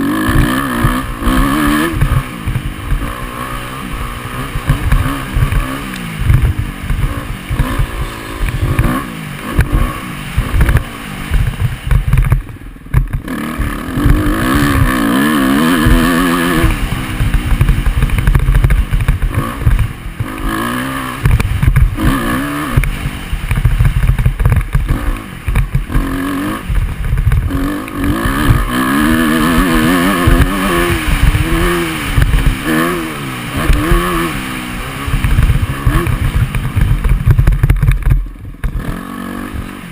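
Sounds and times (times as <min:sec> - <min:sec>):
dirt bike engine revving: 0:00.0 - 0:39.9
wind buffeting on microphone: 0:21.3 - 0:34.3, 0:35.0 - 0:39.0.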